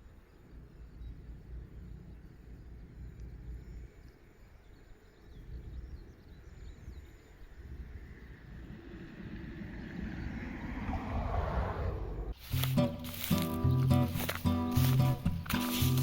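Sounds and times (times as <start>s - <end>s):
wind rumble on microphone: 0.0s - 12.8s.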